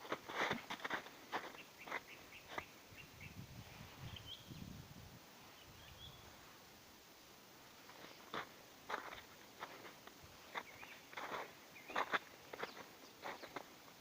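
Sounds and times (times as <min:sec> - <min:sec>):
footsteps crunching in snow: 0:00.0 - 0:02.7, 0:07.8 - 0:14.0
faint bird chirps: 0:01.5 - 0:04.8, 0:05.5 - 0:06.3, 0:10.5 - 0:13.7.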